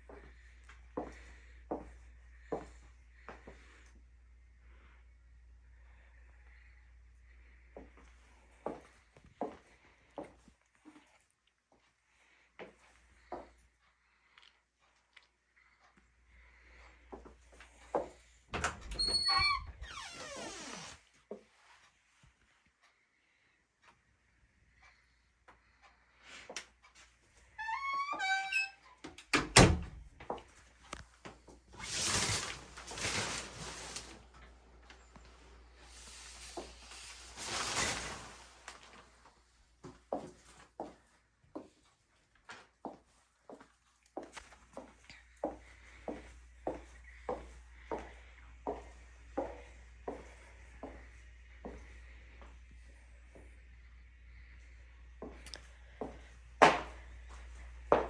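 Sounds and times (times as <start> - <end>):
footsteps walking: 8.6 - 11.9, 30.2 - 52.6
door hinge squealing: 18.6 - 20.6, 27.6 - 29.0.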